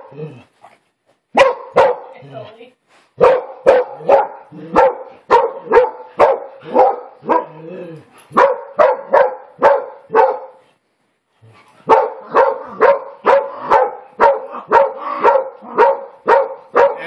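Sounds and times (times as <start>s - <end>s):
dog barking: 1.3s - 2.2s, 3.2s - 7.6s, 8.3s - 10.6s, 11.8s - 17.0s.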